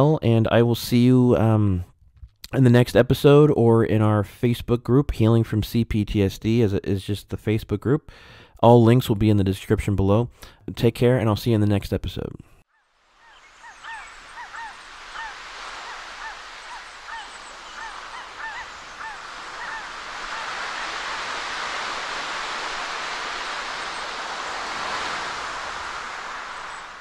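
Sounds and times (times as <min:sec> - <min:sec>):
birds honking: 0:12.7 - 0:27.0
steady rushing noise: 0:13.0 - 0:27.0.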